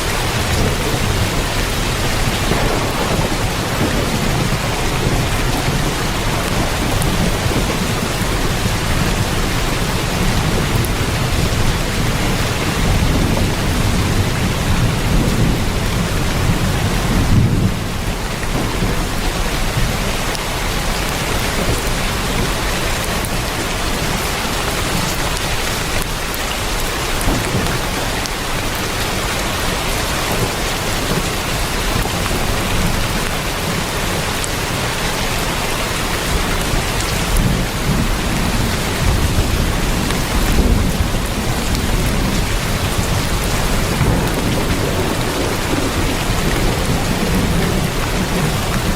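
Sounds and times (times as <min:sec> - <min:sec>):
heavy rain on a tin roof: 0:00.0 - 0:48.9
low rumble of thunder: 0:00.0 - 0:48.9.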